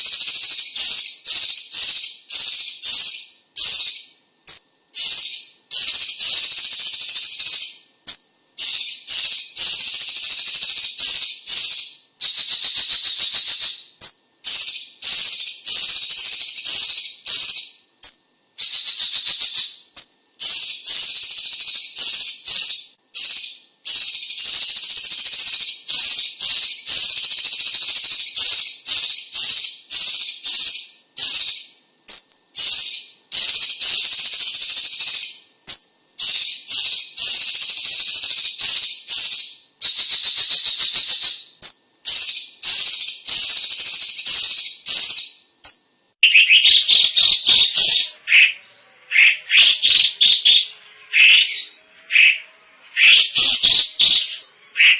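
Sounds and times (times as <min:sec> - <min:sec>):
bird singing rapid high notes: 0:32.1 - 0:54.9.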